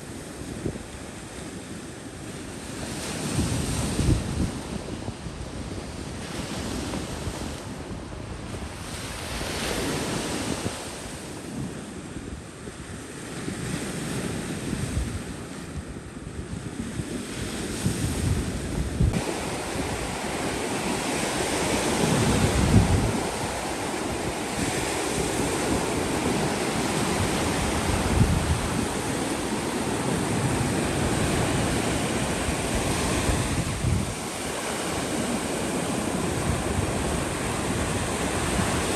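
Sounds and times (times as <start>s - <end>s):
wind buffeting the microphone: 0.0s - 38.9s
ocean surf washing in: 17.6s - 38.9s.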